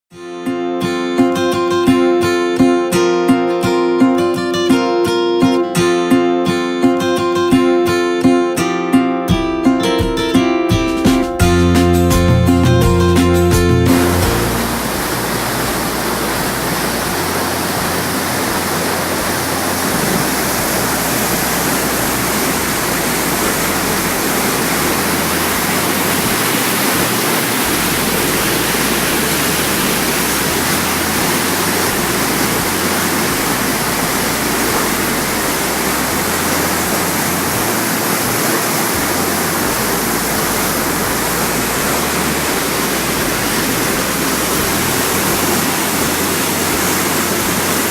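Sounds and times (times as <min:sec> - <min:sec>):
river water rushing: 0:11.1 - 0:47.9.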